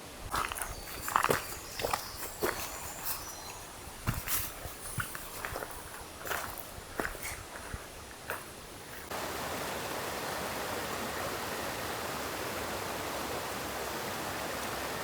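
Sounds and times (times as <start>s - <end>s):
stream flowing over rocks: 8.0s - 15.0s.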